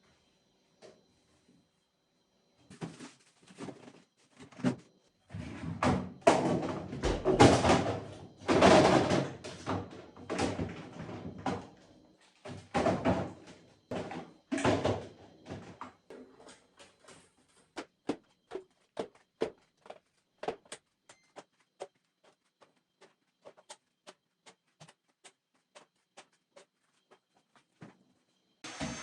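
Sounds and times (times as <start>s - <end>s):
household items knocking and clattering: 5.8s - 11.7s, 12.4s - 16.3s.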